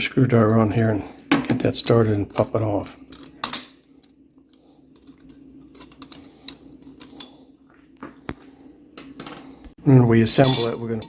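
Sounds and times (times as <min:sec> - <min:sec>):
small metal clicks and scrapes: 0:03.1 - 0:07.3.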